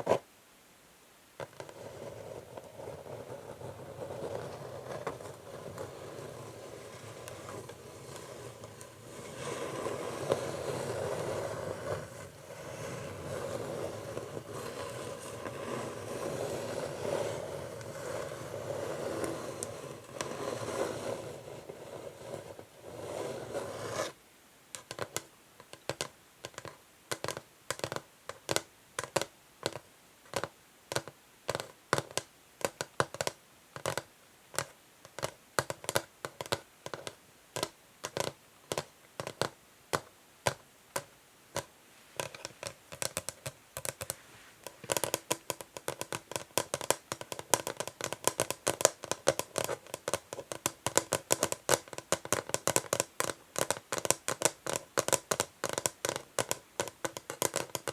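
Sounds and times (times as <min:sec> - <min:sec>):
fingernails tapping on wood: 0:24.8 - 0:57.9.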